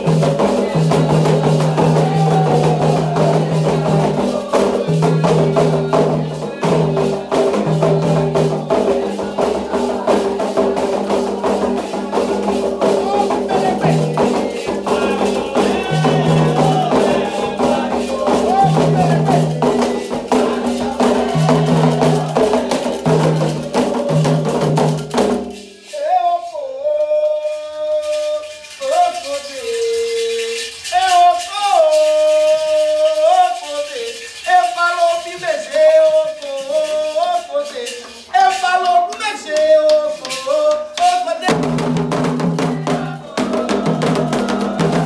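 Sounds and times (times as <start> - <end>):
hand drums fast rhythm: 0.0 - 25.8, 30.9 - 45.0
group singing: 0.0 - 45.0
person singing long notes: 11.6 - 24.8.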